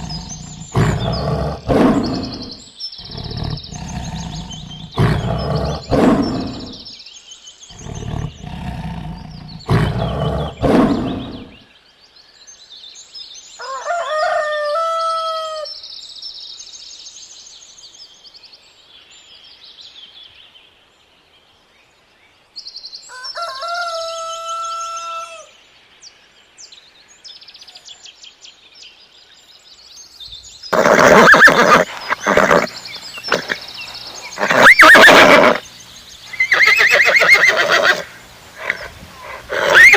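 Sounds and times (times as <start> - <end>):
loud roaring: 0.0 - 6.8, 7.7 - 11.6
small birds chirping: 0.0 - 13.8, 14.6 - 39.9
rooster crowing: 13.6 - 15.7, 23.1 - 25.5
loud animal calls: 30.7 - 35.6, 36.3 - 39.9.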